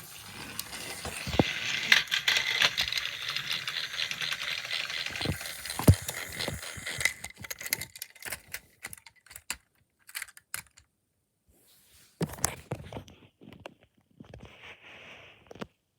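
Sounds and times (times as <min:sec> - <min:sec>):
small hard objects clicking and rattling: 0:00.6 - 0:10.8.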